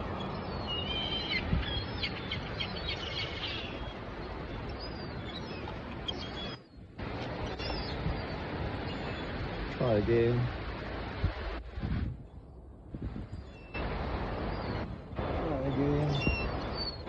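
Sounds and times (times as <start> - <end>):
small birds chirping: 0.0 - 10.4, 14.4 - 17.0.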